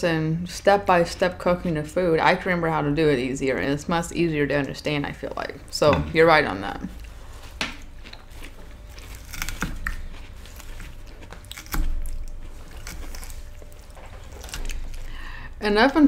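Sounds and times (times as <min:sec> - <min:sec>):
close-up chewing: 0:06.9 - 0:16.0.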